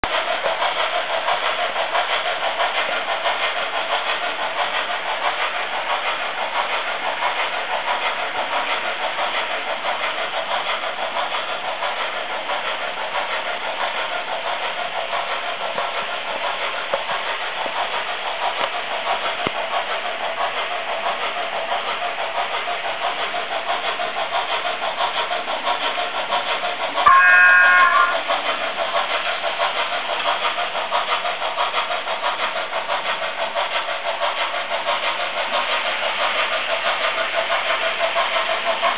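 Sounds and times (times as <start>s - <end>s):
model train running on track: 0.0s - 38.9s
short pitched whistle: 27.1s - 28.3s.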